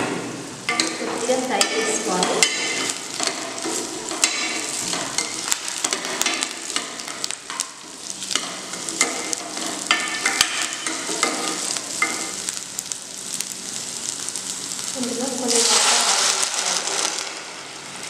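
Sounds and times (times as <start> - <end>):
food sizzling in hot oil: 0.3 - 18.0
spoon scraping and tapping pan: 0.7 - 12.4.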